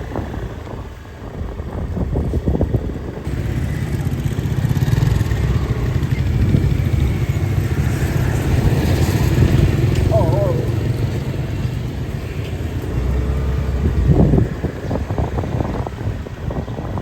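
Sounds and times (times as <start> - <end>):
motorbike engine running: 3.2 - 15.3.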